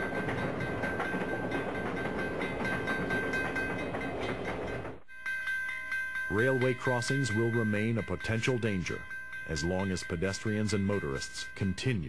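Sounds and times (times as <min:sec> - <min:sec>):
train wheels rumbling on rail: 0:00.0 - 0:05.1.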